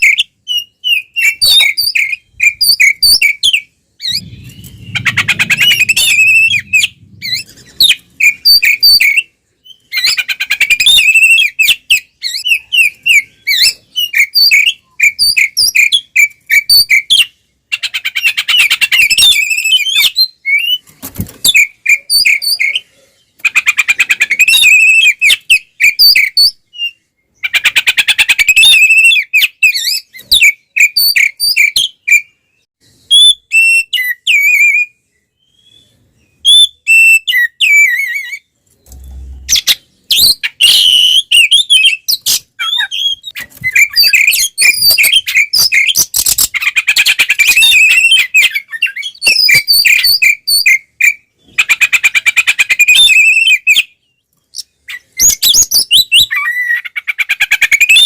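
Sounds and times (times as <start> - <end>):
bird singing whistled notes: 0.0 - 17.4, 28.4 - 46.5, 47.1 - 51.6, 52.8 - 56.9.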